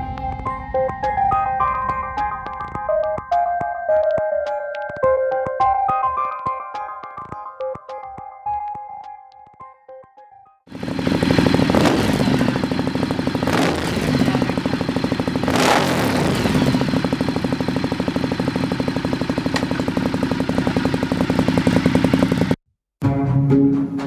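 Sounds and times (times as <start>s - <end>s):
motorcycle engine idling: 10.7s - 22.6s
throttle blips: 11.3s - 22.5s.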